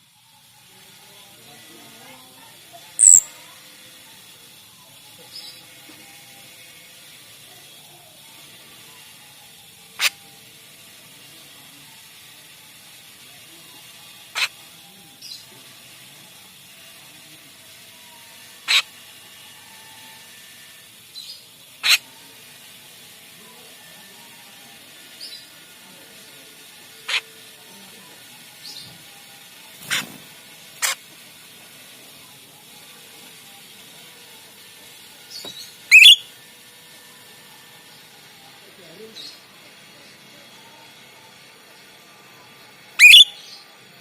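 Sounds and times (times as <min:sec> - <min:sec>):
faint quick chirps: 0:03.0 - 0:03.4, 0:35.4 - 0:36.3, 0:43.0 - 0:43.5
starling sharp calls: 0:03.0 - 0:03.4, 0:10.0 - 0:10.2, 0:14.3 - 0:14.6, 0:18.6 - 0:19.0, 0:21.2 - 0:22.1, 0:27.0 - 0:27.4, 0:29.8 - 0:30.1, 0:30.8 - 0:31.1, 0:35.3 - 0:36.3, 0:43.0 - 0:43.6.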